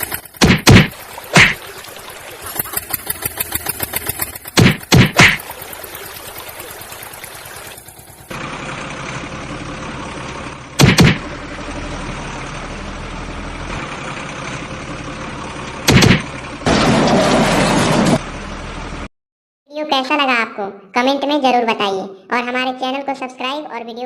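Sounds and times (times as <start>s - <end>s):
engine running: 0.0s - 19.1s.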